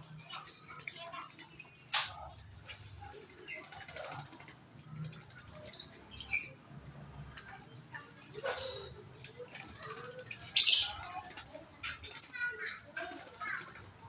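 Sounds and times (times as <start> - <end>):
starling chirps: 0.0 - 6.7, 9.2 - 13.8.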